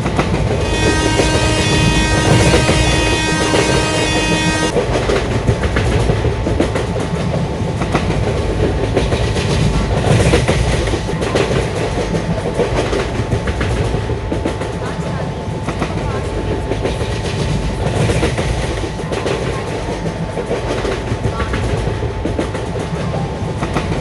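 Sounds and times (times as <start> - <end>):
train wheels clickety-clack on rails: 0.0 - 24.0
train horn: 0.6 - 4.8.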